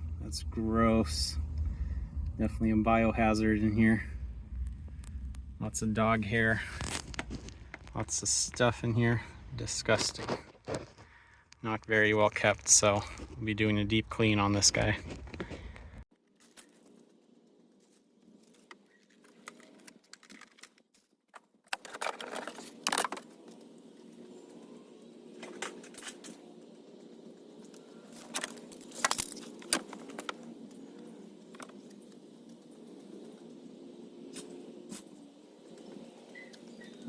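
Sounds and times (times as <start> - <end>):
steady low hum: 0.0 - 16.0
small hard objects clinking: 6.5 - 9.2.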